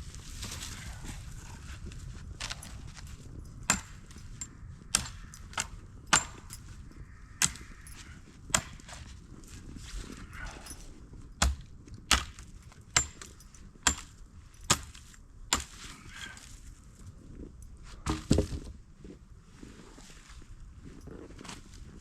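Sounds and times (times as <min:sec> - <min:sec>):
firewood being chopped: 0:03.7 - 0:04.2, 0:04.9 - 0:06.6, 0:07.4 - 0:07.7, 0:08.5 - 0:09.1, 0:11.4 - 0:16.4, 0:18.0 - 0:18.8.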